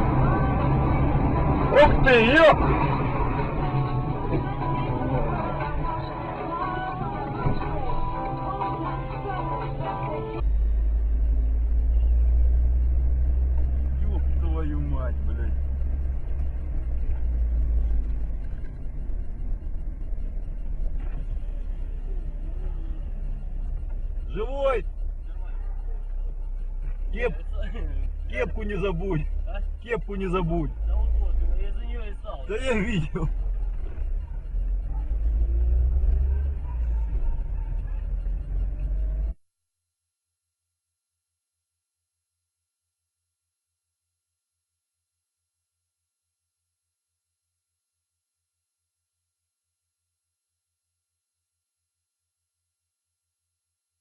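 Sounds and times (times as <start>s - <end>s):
car engine rumble: 0.0s - 39.4s
road noise inside car: 0.0s - 39.4s.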